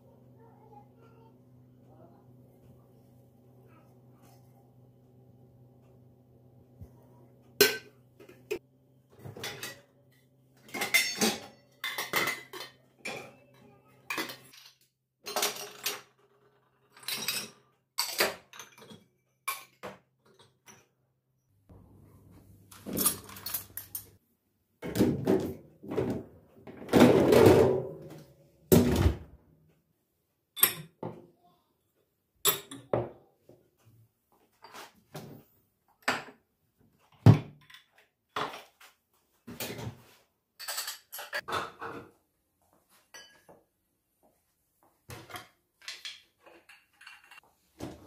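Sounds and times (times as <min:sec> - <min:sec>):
dishes and cutlery clinking: 0:07.6 - 0:08.6, 0:09.2 - 0:09.9, 0:10.6 - 0:16.2, 0:16.9 - 0:20.9, 0:40.6 - 0:42.2, 0:43.0 - 0:43.6, 0:45.1 - 0:47.4
dishes clattering: 0:07.6 - 0:08.6, 0:09.2 - 0:10.0, 0:10.6 - 0:13.4, 0:14.1 - 0:16.2, 0:40.6 - 0:42.2, 0:43.1 - 0:43.5, 0:45.1 - 0:47.4.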